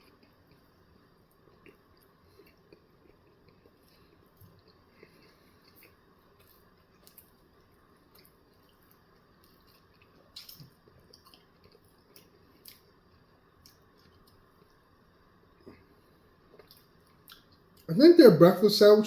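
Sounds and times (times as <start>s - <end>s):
chewing food: 0.0s - 15.0s, 15.6s - 17.9s
wet mouth clicks and smacks: 9.4s - 12.9s, 16.6s - 17.6s.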